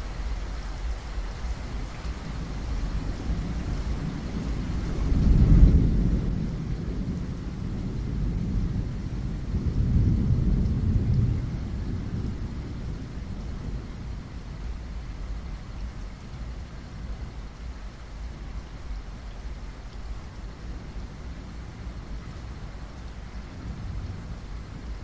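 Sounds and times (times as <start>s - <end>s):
thunder rumbling: 2.3s - 15.0s.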